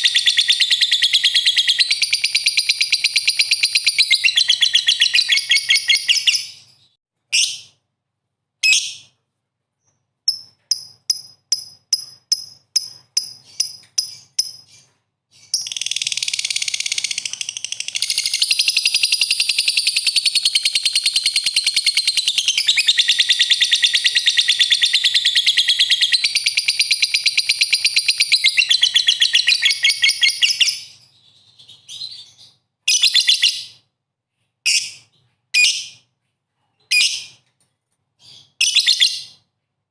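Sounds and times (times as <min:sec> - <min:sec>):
songbird singing: 0:00.0 - 0:07.7.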